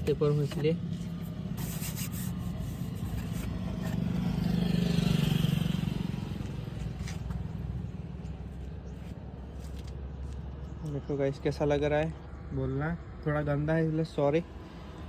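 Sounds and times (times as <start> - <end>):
scraping and rubbing nearby: 0.0 - 4.5, 6.4 - 7.4
vehicle running with road noise: 0.0 - 15.0.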